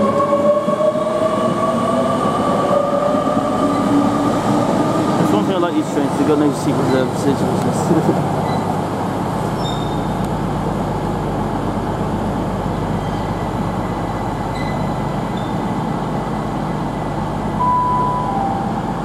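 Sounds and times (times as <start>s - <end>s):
train rumbling along: 0.0s - 19.0s
short high tones: 17.6s - 19.0s.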